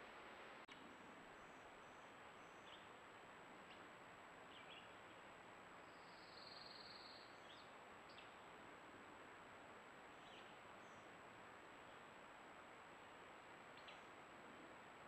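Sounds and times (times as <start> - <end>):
faint bird chirps: 0.7 - 3.0, 5.8 - 8.4, 13.7 - 14.1.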